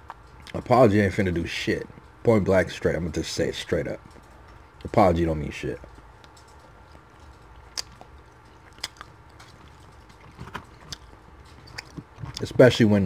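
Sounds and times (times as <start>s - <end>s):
close chewing with mouth clicks: 6.2s - 12.6s.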